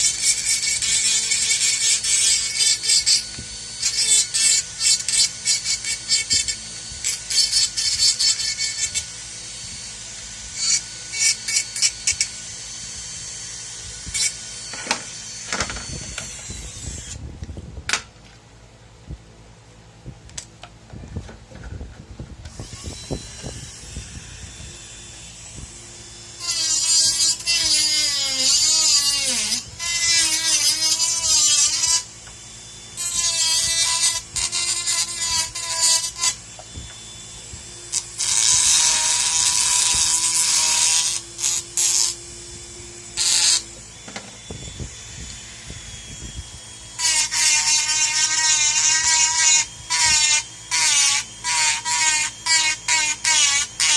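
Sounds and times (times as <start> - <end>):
rotary handpiece grinding: 0.0 - 9.2.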